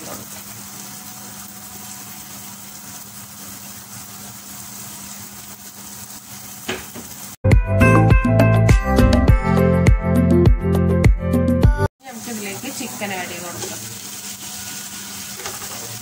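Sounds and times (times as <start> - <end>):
vegetables sizzling in hot oil: 0.0 - 7.4, 12.0 - 16.0
loud music with steady beat: 7.5 - 11.9.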